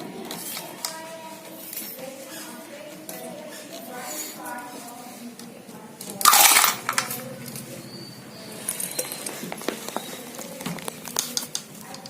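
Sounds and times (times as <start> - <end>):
small clicks and taps: 9.0 - 12.0.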